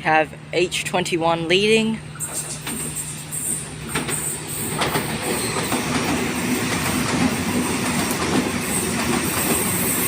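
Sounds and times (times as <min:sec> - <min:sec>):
train wheels rumbling on rails: 0:01.5 - 0:10.0.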